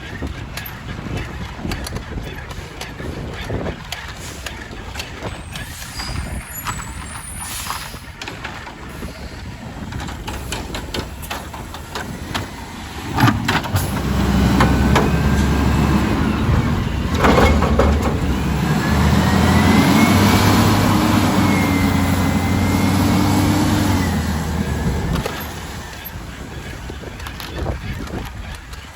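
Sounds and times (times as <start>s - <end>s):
truck engine running with whine: 2.9s - 28.8s
bang: 16.3s - 19.8s.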